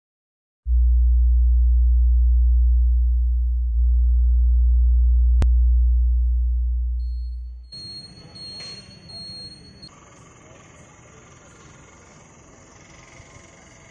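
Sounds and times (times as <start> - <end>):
deep low hum: 0.6 - 8.0.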